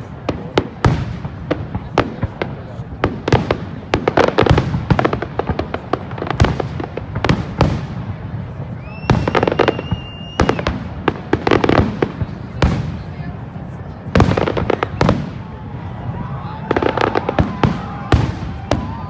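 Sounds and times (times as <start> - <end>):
fireworks bangs and crackles: 0.0 - 19.0
firework high whistle: 8.7 - 10.8.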